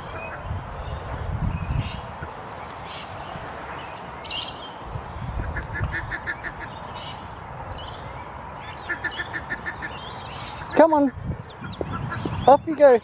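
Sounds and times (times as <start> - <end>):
ducks quacking: 5.4 - 6.8, 8.7 - 13.0.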